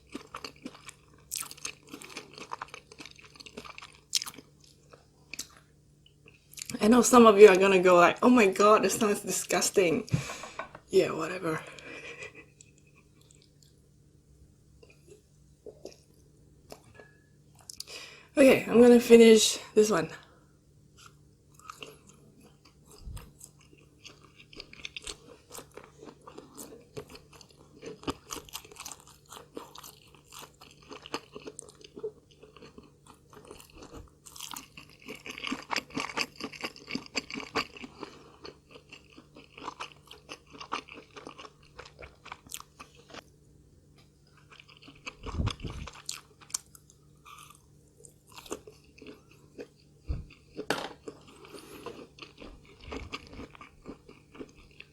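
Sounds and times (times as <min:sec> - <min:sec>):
chewing and crunching food: 0:00.0 - 0:06.8, 0:11.6 - 0:13.8, 0:21.0 - 0:54.9.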